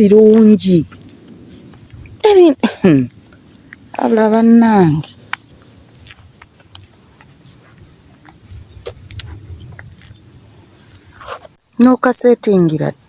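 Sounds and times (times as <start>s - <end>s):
insects chirring: 0.0s - 13.0s
low rumble: 7.9s - 11.2s.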